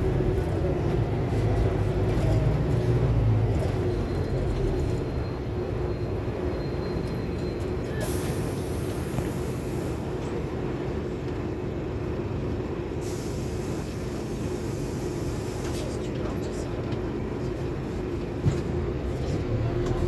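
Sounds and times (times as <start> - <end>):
bus engine and road noise: 0.0 - 20.0.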